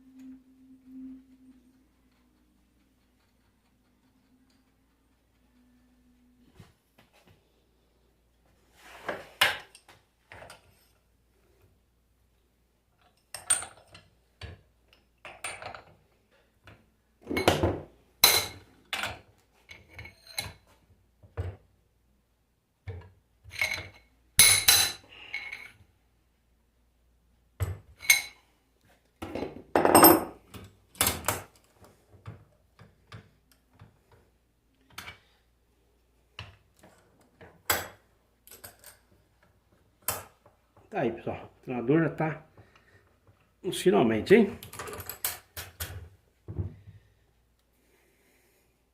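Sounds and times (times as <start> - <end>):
metal tools clinking and knocking: 13.0 - 14.6, 15.2 - 16.0, 17.3 - 20.6, 23.4 - 25.8, 28.0 - 28.5, 29.4 - 31.6, 37.7 - 39.1.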